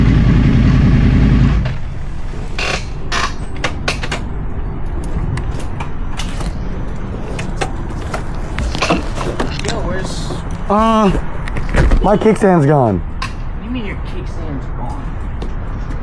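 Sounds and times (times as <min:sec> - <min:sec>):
motorcycle engine running: 0:00.0 - 0:04.2
mechanical clicks and knocks: 0:02.2 - 0:06.6, 0:13.2 - 0:13.5.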